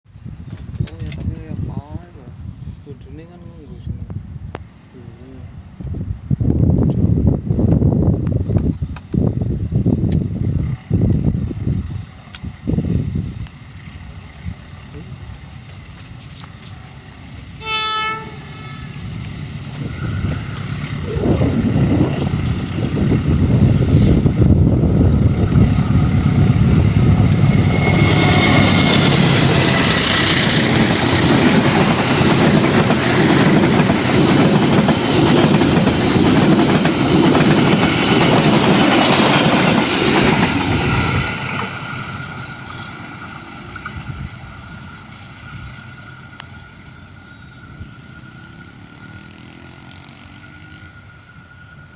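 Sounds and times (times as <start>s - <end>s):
train rumble and wheel clatter: 0.1s - 51.9s
locomotive horn blast: 17.6s - 19.2s.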